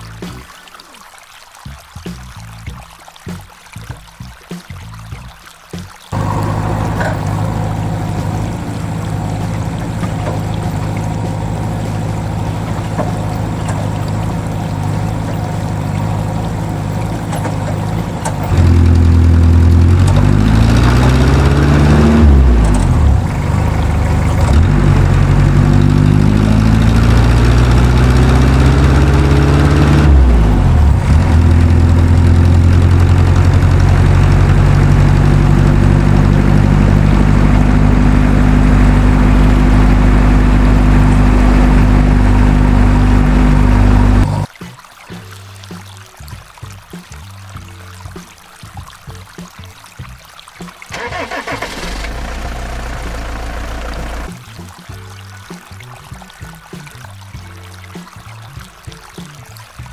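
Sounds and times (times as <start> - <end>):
engine revving: 6.1 - 44.5, 50.9 - 54.3.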